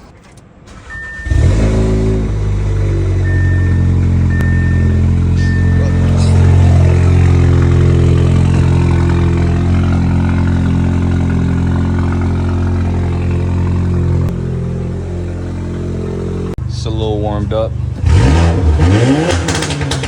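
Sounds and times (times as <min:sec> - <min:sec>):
car engine starting and idling: 0:00.0 - 0:20.0
short high beeps: 0:03.2 - 0:07.3.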